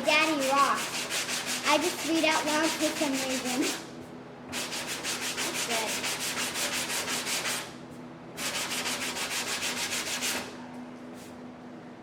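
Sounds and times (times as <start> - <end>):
sandpaper rasping back and forth: 0.2 - 3.8, 4.5 - 7.7, 8.4 - 10.4.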